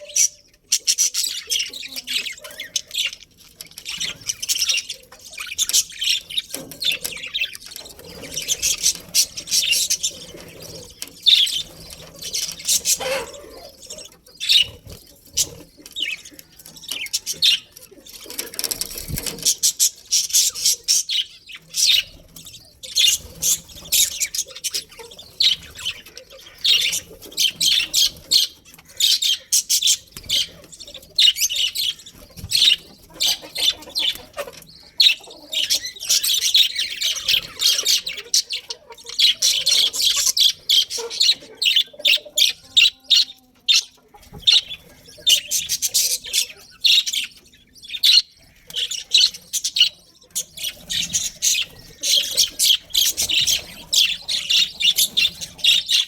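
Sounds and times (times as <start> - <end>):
budgerigars chattering: 0.0 - 56.0.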